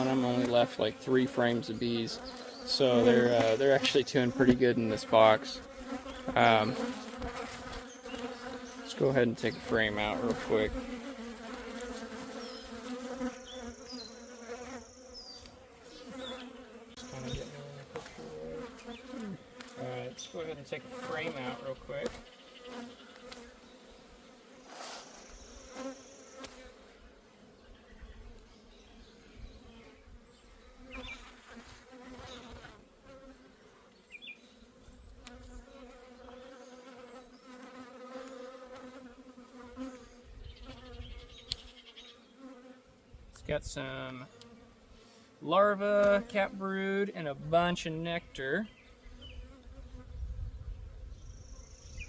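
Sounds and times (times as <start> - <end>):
bees humming: 0.0 - 43.2, 43.8 - 52.0
honeybees buzzing: 0.0 - 52.0.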